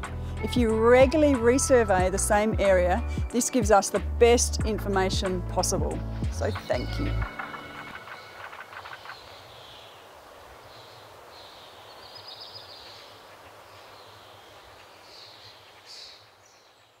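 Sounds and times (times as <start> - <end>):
background hiss: 5.8 - 17.0
bird calls: 6.5 - 17.0.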